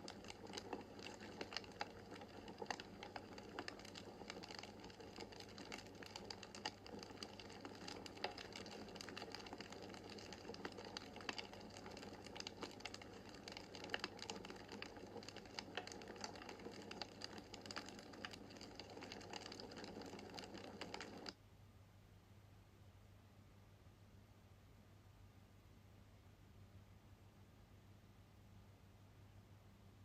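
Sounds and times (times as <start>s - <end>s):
wood fire crackling: 0.0s - 21.4s
faint low hum: 0.0s - 30.0s.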